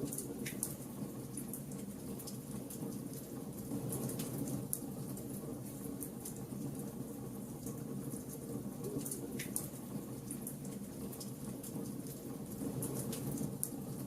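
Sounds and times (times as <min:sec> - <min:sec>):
wood fire crackling and popping: 0:00.0 - 0:05.4.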